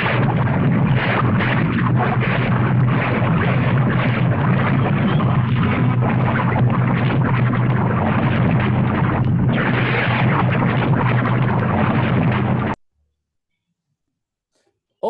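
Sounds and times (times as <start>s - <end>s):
volcano rumbling and crackling: 0.0s - 12.8s.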